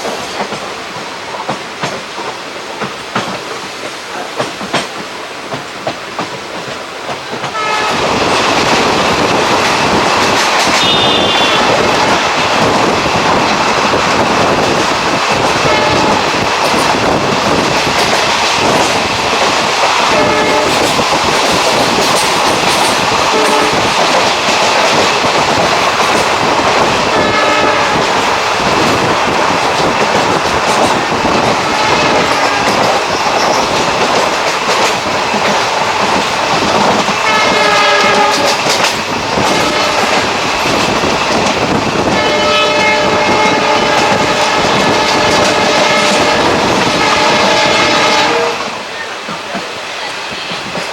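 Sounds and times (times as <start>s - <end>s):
train running on rails: 0.0s - 50.9s
train horn: 7.5s - 8.2s, 10.7s - 12.2s, 15.6s - 16.4s, 20.0s - 21.0s, 23.3s - 23.9s, 27.1s - 28.2s, 31.6s - 32.8s, 37.2s - 38.7s, 39.5s - 40.2s, 42.1s - 48.9s.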